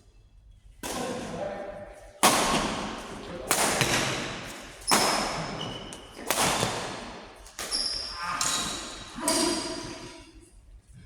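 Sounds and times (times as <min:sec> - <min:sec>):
sharp racket hits echoing: 0:02.2 - 0:10.1
shoe squeaks: 0:07.6 - 0:10.2.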